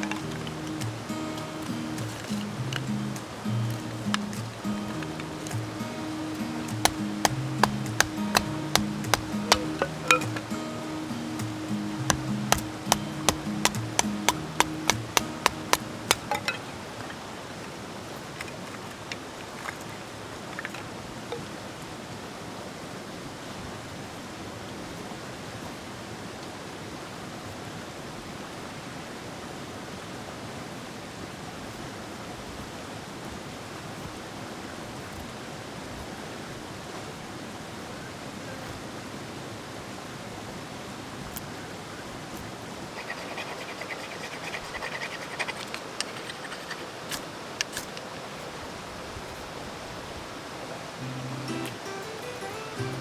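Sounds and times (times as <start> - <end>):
stream rushing: 0.0 - 34.7, 35.4 - 53.0
faint taps: 6.7 - 10.5, 12.1 - 16.4.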